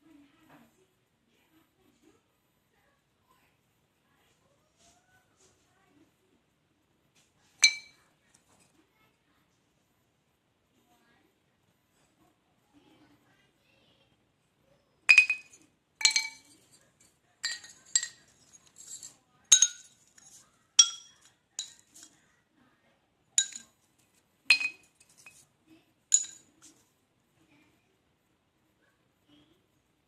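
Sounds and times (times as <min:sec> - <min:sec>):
charcoal pieces clinking: 0:07.6 - 0:08.0, 0:15.1 - 0:16.8, 0:17.4 - 0:22.1, 0:23.4 - 0:23.7, 0:24.5 - 0:25.4, 0:26.1 - 0:26.5.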